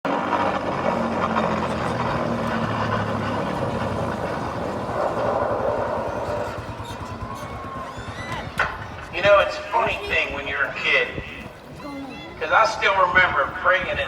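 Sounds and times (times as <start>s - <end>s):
vehicle engine running: 0.1s - 11.8s
rushing background noise: 0.1s - 14.0s.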